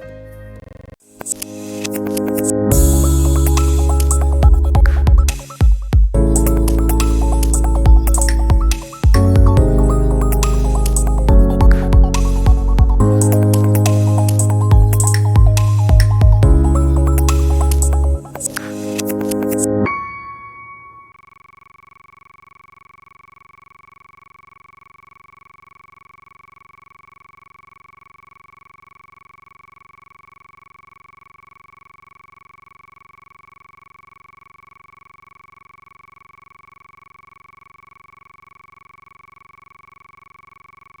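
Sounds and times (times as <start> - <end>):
steady high electronic tone: 1.1 - 21.6.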